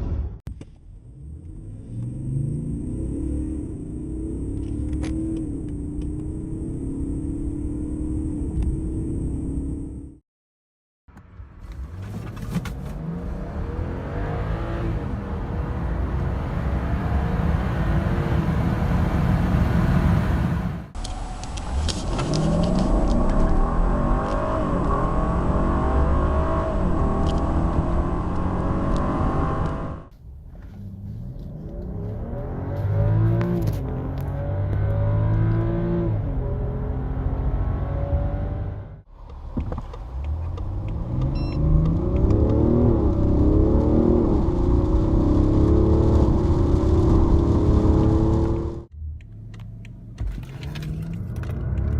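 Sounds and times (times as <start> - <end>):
car accelerating hard: 11.8 - 21.0, 22.2 - 30.1, 30.8 - 39.0, 40.0 - 51.9.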